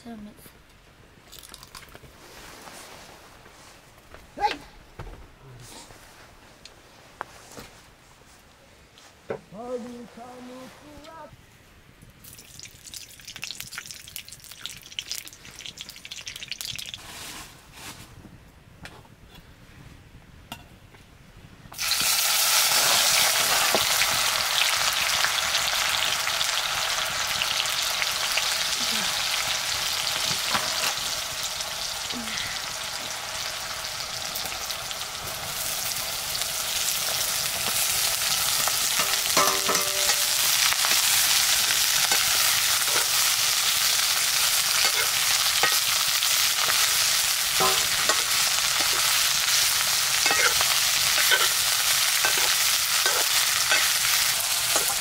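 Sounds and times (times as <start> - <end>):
food sizzling in hot oil: 12.2 - 17.0, 21.7 - 55.0
stirring clinks: 39.0 - 40.5, 47.6 - 48.3.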